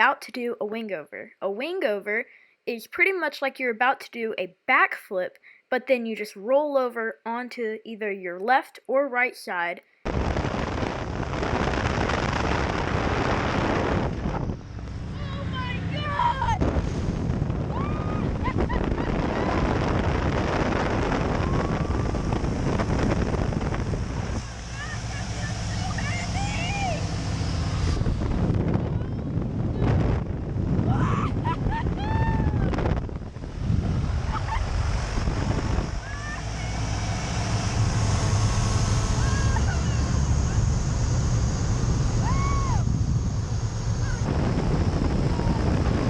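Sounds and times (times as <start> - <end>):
biplane engine droning: 10.1 - 46.0
wind rushing over microphone: 10.1 - 46.0.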